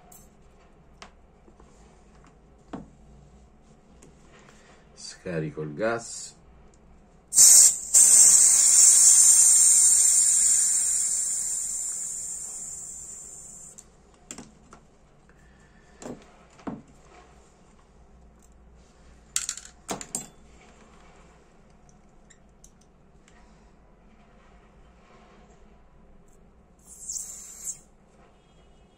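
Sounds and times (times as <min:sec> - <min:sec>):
butane hissing from lighter: 0:07.3 - 0:13.7, 0:26.8 - 0:27.8.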